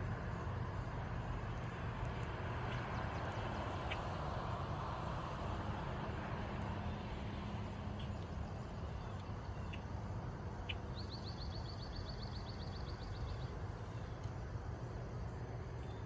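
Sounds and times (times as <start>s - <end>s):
low outdoor rumble: 0.0s - 16.0s
songbird trill: 0.3s - 5.6s, 6.6s - 16.0s
bird chirps: 10.6s - 14.1s.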